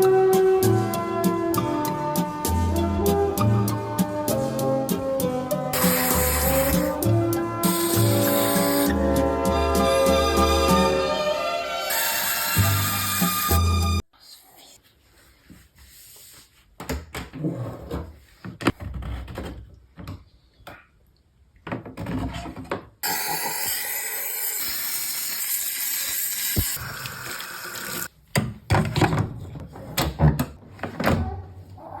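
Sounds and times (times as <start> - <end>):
water running from a tap: 23.0 - 28.1.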